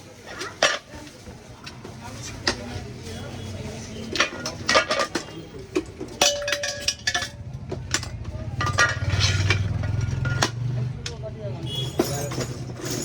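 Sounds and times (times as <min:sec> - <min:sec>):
metal objects clinking: 0:04.1 - 0:10.7, 0:11.7 - 0:13.0.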